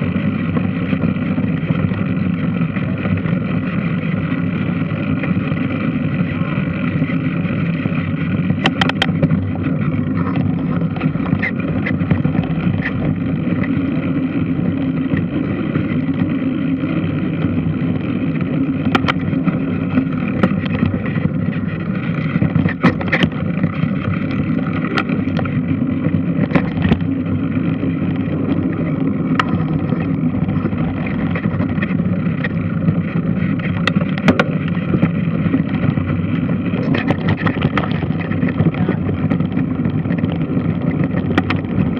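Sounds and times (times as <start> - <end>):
sharp clicks and knocks: 8.3 - 13.9, 18.3 - 41.9.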